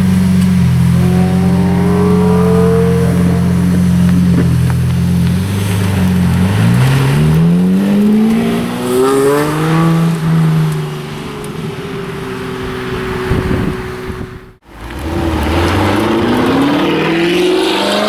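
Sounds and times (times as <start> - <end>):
car driving away: 0.0 - 18.0
car engine accelerating: 0.0 - 18.0.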